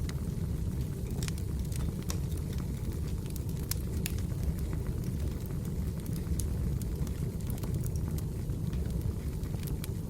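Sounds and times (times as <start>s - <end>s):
fire low rumble: 0.0s - 10.0s
firewood popping and snapping: 1.0s - 8.0s.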